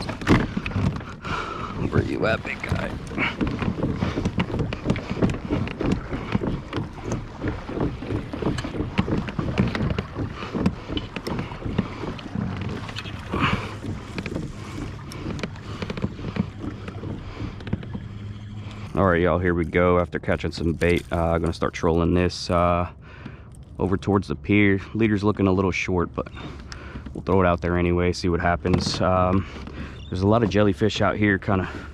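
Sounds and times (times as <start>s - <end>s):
wind buffeting microphone: 0.0s - 22.4s
water slapping kayak hull: 0.0s - 31.9s.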